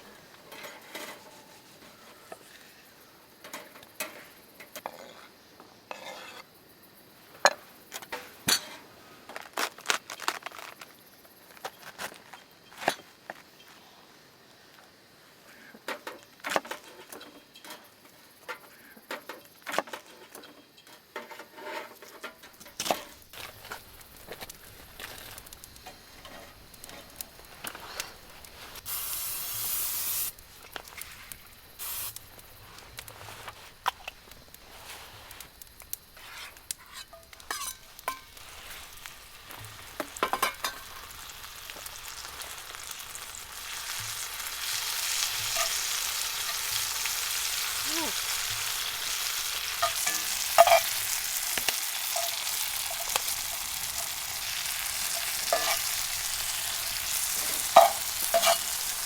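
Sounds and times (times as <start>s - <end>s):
utensil clinking and scraping: 0.5s - 2.6s, 36.2s - 38.8s, 45.0s - 46.9s, 49.7s - 59.0s
food frying and sizzling: 15.9s - 59.0s.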